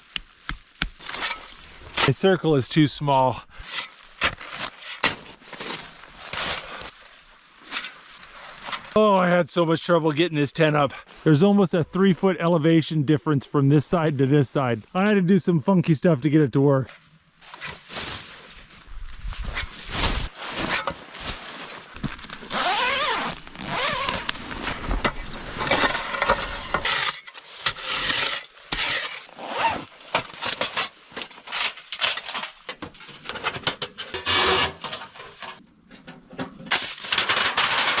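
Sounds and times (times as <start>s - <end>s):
rubbing and scraping: 19.2s - 35.6s.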